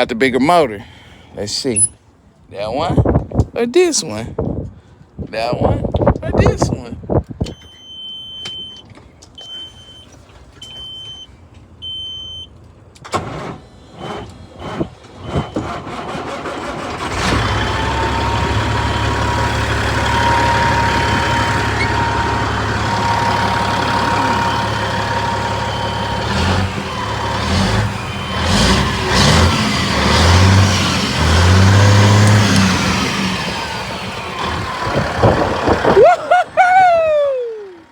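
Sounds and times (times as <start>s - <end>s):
diesel engine cranking and running: 8.6s - 37.9s
warning beep: 9.4s - 12.5s
diesel engine revving: 13.1s - 37.9s.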